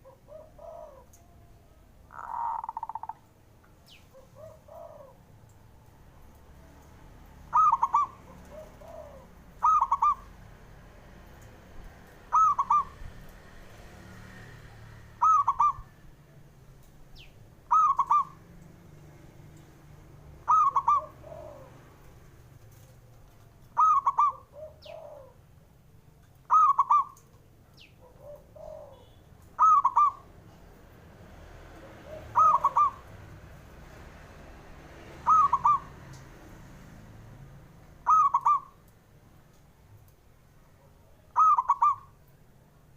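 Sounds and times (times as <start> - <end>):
dove cooing: 0.0 - 1.4, 2.1 - 3.2, 3.9 - 5.3, 7.5 - 10.3, 12.3 - 13.0, 15.2 - 15.9, 17.2 - 18.4, 20.4 - 22.0, 23.7 - 25.4, 26.5 - 27.2, 28.0 - 30.3, 31.8 - 33.2, 35.1 - 36.1, 38.0 - 38.8, 41.0 - 42.2
fainter lower coo: 28.0 - 30.2.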